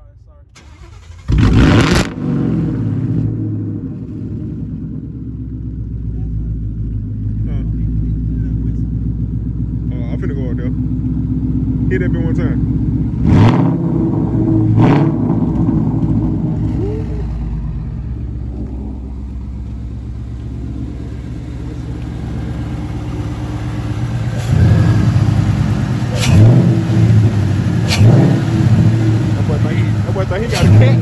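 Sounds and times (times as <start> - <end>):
car engine revving: 0.6 - 31.0.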